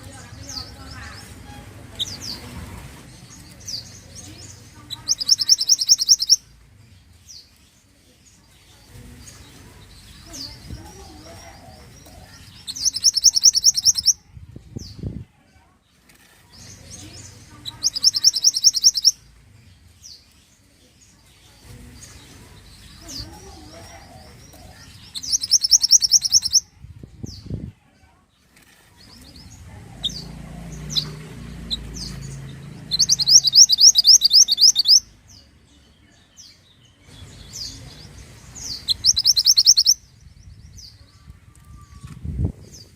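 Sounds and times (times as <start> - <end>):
songbird trilling: 3.7 - 6.4, 10.1 - 14.2, 17.0 - 19.2, 22.8 - 26.7, 29.2 - 35.1, 37.2 - 40.2.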